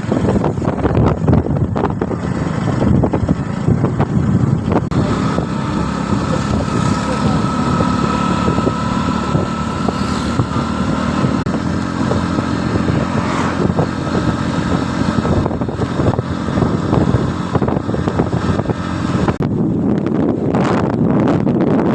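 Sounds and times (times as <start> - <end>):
motorcycle engine running: 0.0 - 21.9
brief rising sound: 13.0 - 13.7.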